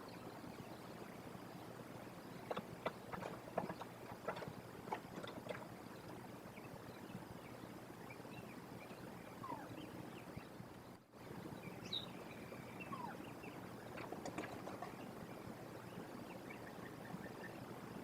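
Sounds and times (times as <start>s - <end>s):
faint bird chirps: 0.0s - 18.0s
steady outdoor hiss: 0.0s - 18.0s.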